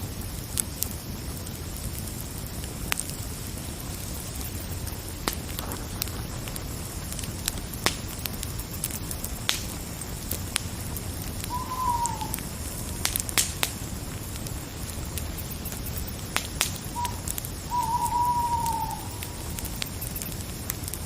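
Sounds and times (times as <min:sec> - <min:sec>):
fire crackling and popping: 0:00.0 - 0:21.0
short falling call: 0:11.5 - 0:12.4.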